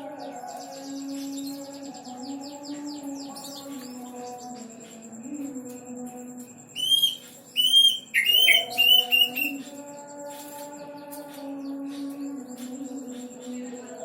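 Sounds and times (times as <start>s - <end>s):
cuckoo whistled calls: 6.8s - 9.6s.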